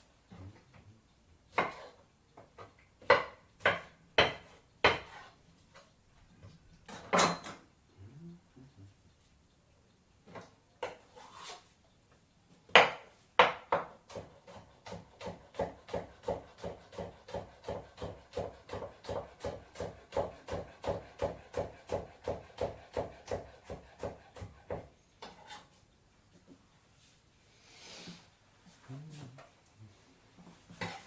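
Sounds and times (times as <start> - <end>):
knife chopping on wooden board: 1.6 - 1.9, 3.0 - 5.3, 12.7 - 25.5.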